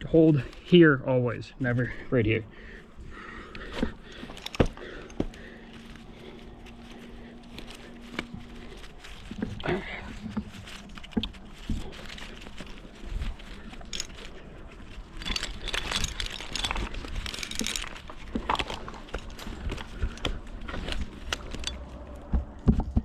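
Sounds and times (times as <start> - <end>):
rope and bark rustling: 0.0 - 23.0
scraping on bark: 3.1 - 22.6
metal hardware clinking: 10.3 - 22.2.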